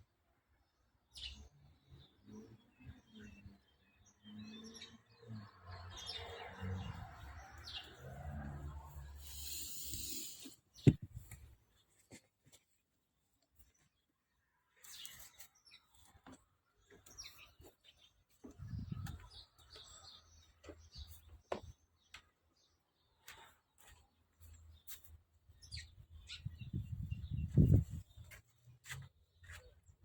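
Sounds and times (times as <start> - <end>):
faint birds chirping: 0.6 - 30.0.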